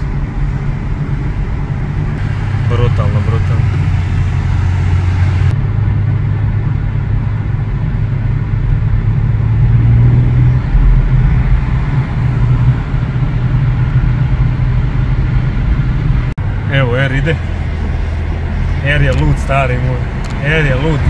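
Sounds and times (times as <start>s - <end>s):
car engine and exhaust droning: 0.0s - 21.0s.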